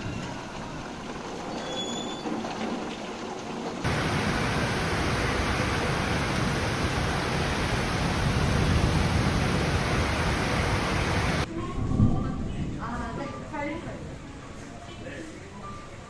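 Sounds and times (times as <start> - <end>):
heavy rain hissing: 3.8 - 11.5.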